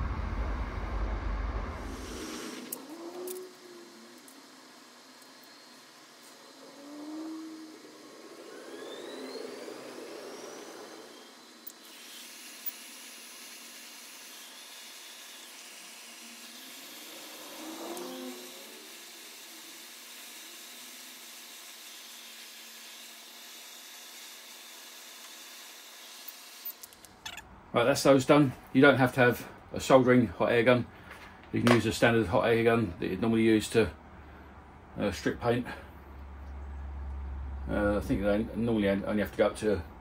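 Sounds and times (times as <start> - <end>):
hot air gun blowing: 1.7 - 27.3.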